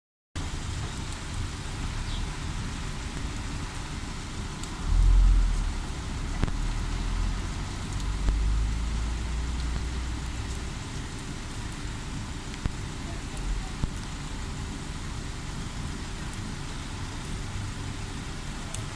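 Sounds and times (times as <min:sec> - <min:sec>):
heavy rain falling: 0:00.4 - 0:18.9
low rumble: 0:04.6 - 0:10.7.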